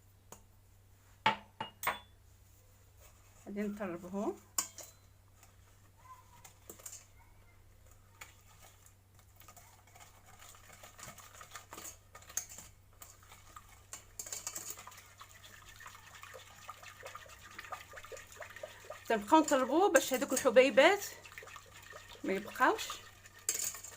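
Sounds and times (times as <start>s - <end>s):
whisk ticking against a pan: 9.4s - 23.9s.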